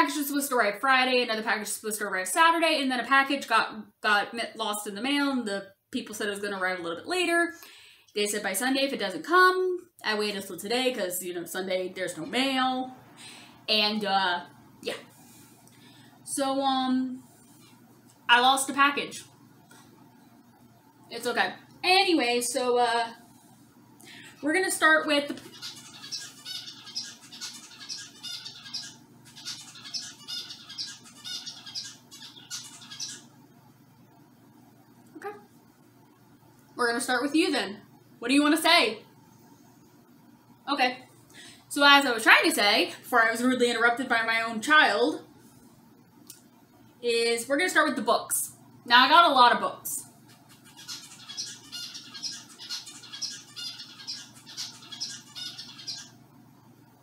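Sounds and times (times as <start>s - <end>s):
bird high-pitched calls: 25.4s - 33.3s, 50.5s - 56.2s.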